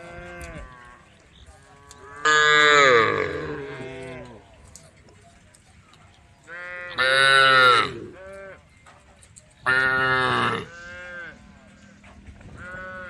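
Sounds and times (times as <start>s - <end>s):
cow mooing: 1.9s - 4.4s, 6.5s - 8.6s, 9.7s - 11.4s.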